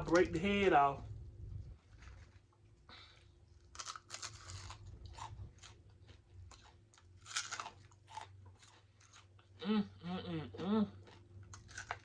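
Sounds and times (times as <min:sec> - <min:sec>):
crunching fried fish: 0:03.5 - 0:09.6, 0:11.0 - 0:12.0.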